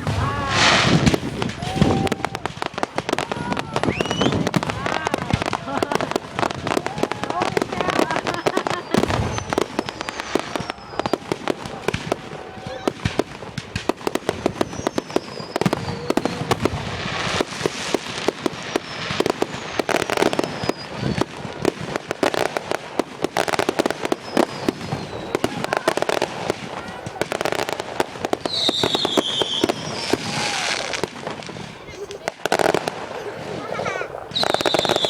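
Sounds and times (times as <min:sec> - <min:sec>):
fireworks bangs and crackles: 0:00.0 - 0:35.0
high whistles of firework shells: 0:00.0 - 0:35.0.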